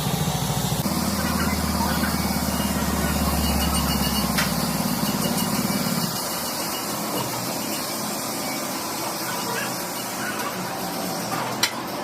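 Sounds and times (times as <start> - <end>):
motor running with low pulse: 0.0 - 8.9.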